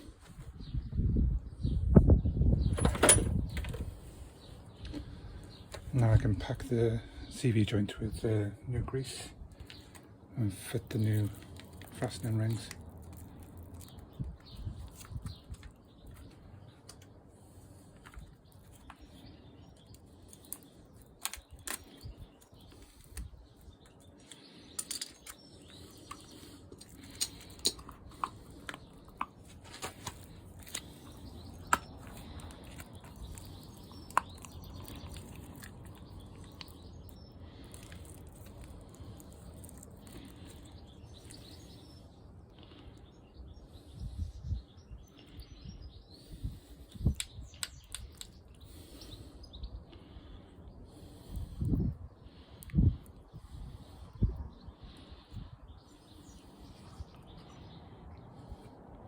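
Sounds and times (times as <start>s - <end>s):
clicks and knocks of hands working: 22.7s - 36.8s.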